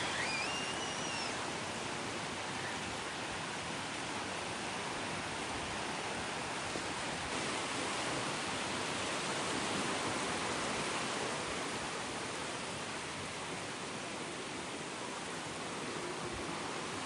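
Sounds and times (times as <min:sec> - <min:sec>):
sea waves breaking on beach: 0:00.0 - 0:17.0.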